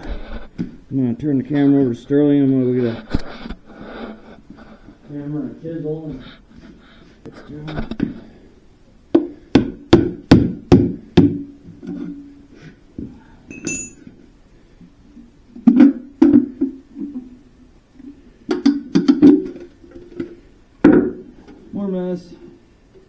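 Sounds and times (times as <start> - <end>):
high metallic clink: 13.5 - 14.1.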